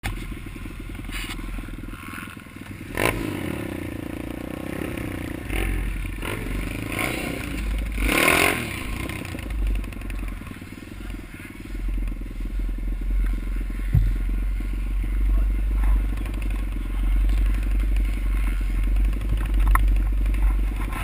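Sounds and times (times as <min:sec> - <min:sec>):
small motorcycle engine revving: 0:00.0 - 0:21.0.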